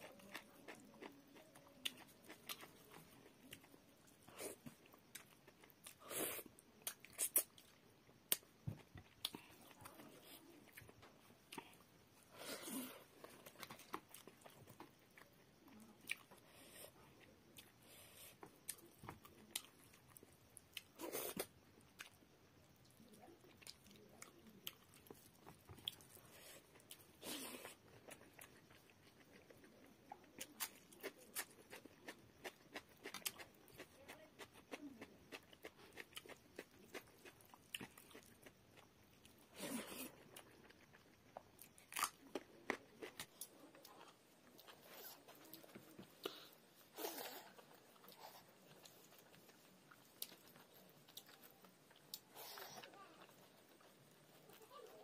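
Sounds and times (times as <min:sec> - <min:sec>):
chewing and wet mouth clicks: 0:47.1 - 0:52.6.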